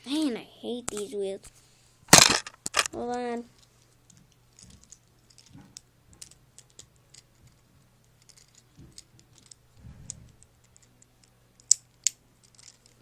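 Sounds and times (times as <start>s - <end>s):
plastic toy bricks clicking: 10.7s - 13.0s.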